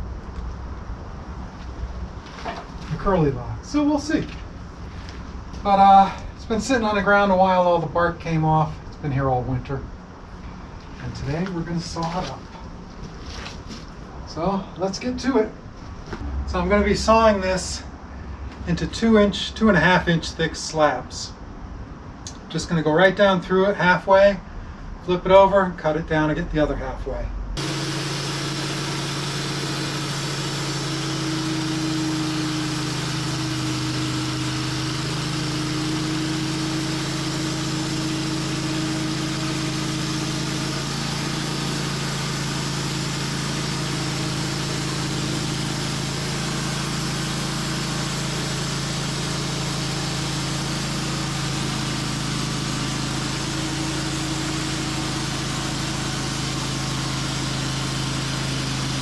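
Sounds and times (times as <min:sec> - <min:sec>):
sawmill engine running: 0:27.6 - 0:59.0.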